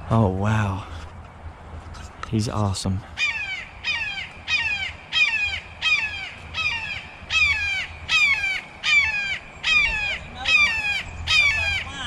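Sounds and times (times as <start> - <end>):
bird harsh calls: 3.1 - 12.0.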